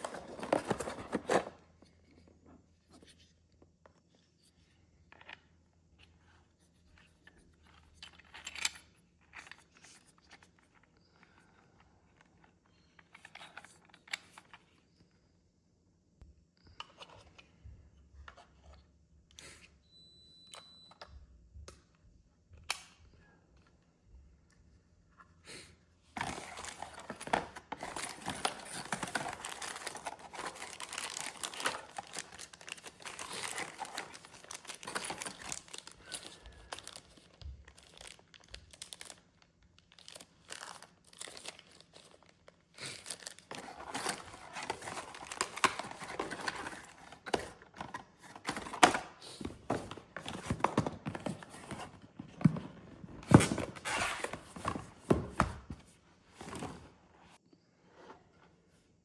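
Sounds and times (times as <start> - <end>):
packaging crinkling and rustling: 0.0 - 1.6, 26.2 - 56.9.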